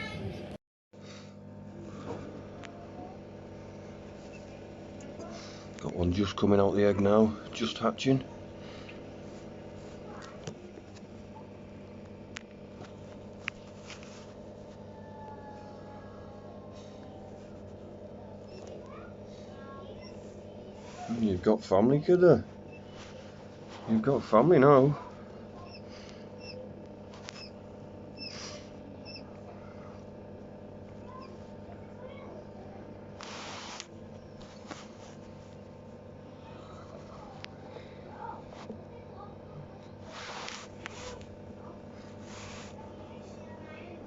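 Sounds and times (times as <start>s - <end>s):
steady machine hum: 0.0s - 44.0s
quail chicks peeping: 25.6s - 26.6s, 27.2s - 27.6s, 28.2s - 29.3s.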